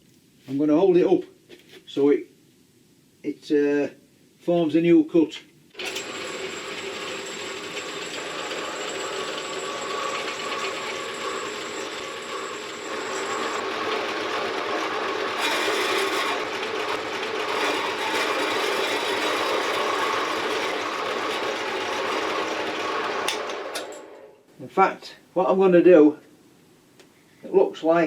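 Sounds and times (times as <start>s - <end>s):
metal-cutting bandsaw running: 5.8s - 24.2s.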